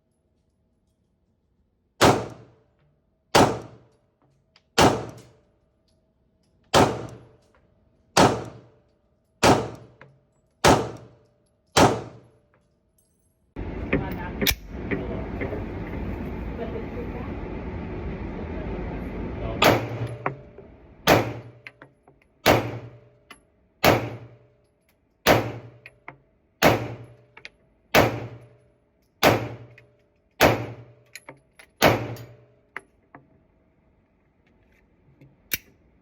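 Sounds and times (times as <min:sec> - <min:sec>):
pistol shots with echo: 0:02.0 - 0:02.6, 0:03.4 - 0:03.9, 0:04.8 - 0:05.3, 0:06.7 - 0:07.4, 0:08.2 - 0:08.8, 0:09.4 - 0:10.0, 0:10.6 - 0:11.2, 0:11.8 - 0:12.3, 0:19.6 - 0:20.2, 0:21.1 - 0:21.6, 0:22.4 - 0:23.1, 0:23.8 - 0:24.4, 0:25.3 - 0:25.8, 0:26.6 - 0:27.2, 0:28.0 - 0:28.5, 0:29.2 - 0:29.7, 0:30.4 - 0:31.0, 0:31.8 - 0:32.4.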